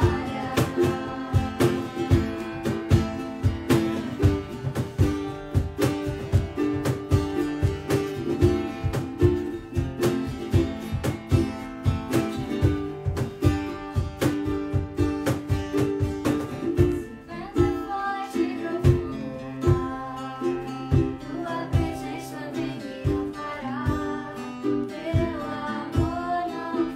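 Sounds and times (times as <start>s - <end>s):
low beat: 0.0s - 17.8s
acoustic guitar strumming: 0.0s - 26.9s.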